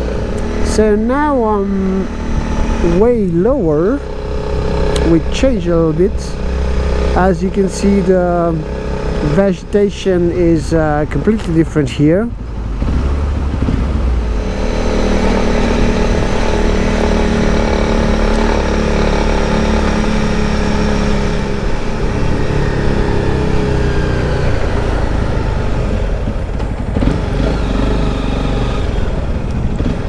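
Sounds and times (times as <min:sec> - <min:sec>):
low wind rumble: 0:00.0 - 0:30.0
motorcycle engine running: 0:00.0 - 0:30.0.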